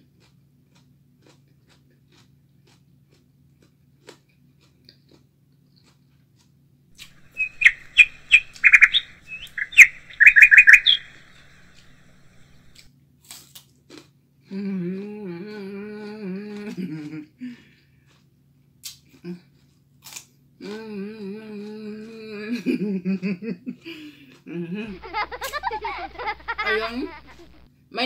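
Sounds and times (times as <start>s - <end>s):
bird chirping: 7.0s - 12.8s, 24.9s - 27.6s.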